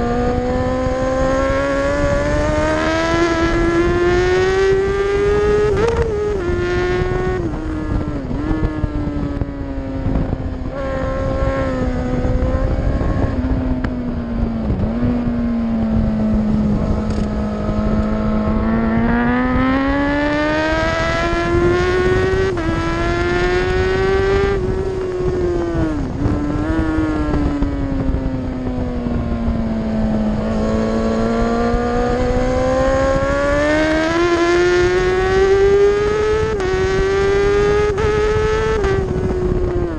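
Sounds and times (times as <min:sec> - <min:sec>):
racing motorcycle engine: 0:00.0 - 0:39.9
wind rushing on microphone: 0:00.0 - 0:39.9.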